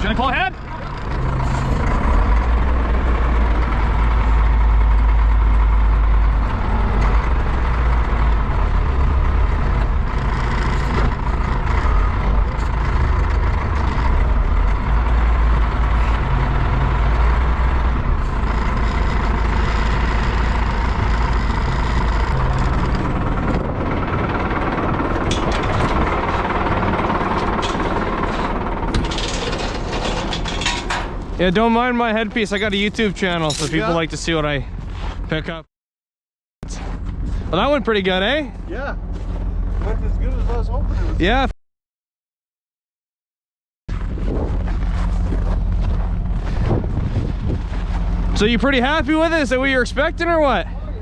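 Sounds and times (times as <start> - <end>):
vehicle engine running: 0.0 - 35.3.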